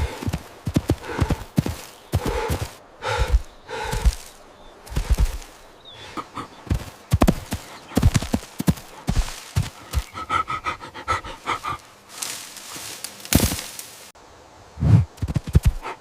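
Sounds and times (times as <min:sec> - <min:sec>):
animal thuds: 0:06.7 - 0:10.2.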